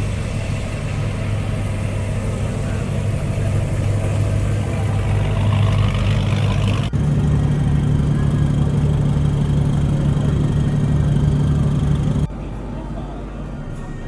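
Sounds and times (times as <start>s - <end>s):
car engine idling: 0.0s - 12.3s
engine revving up: 1.9s - 12.3s.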